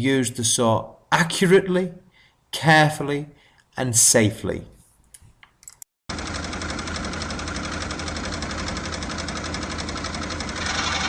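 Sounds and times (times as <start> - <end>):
scroll saw running: 6.1 - 11.0.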